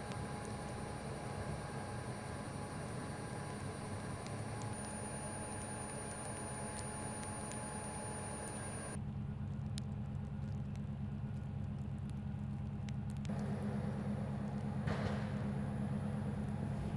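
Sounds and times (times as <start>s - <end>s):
tyres hissing on road: 0.0s - 9.0s
vehicle engine rumble: 0.0s - 16.9s.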